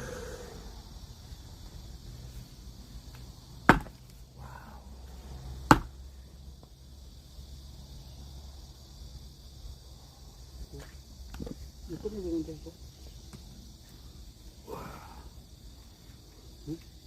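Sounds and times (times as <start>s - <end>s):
axe chopping log: 3.6s - 4.0s, 5.6s - 6.0s.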